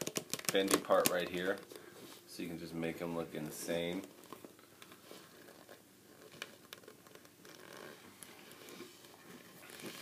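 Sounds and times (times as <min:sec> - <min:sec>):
plastic figure handling noise: 0:00.0 - 0:02.2.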